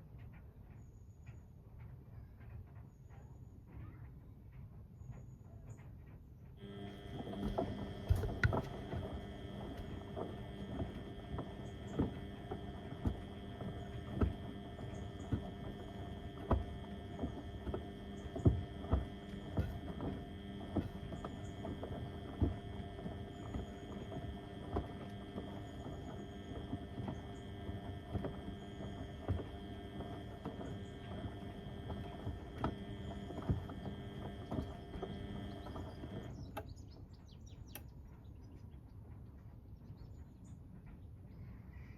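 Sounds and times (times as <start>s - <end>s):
washing machine motor hum: 6.6s - 36.8s.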